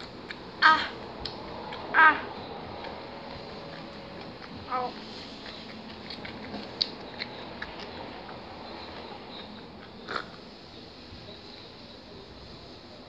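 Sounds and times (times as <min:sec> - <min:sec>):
mouth clicks and smacks: 0:00.0 - 0:01.9, 0:05.4 - 0:10.4
person chewing: 0:02.8 - 0:08.4.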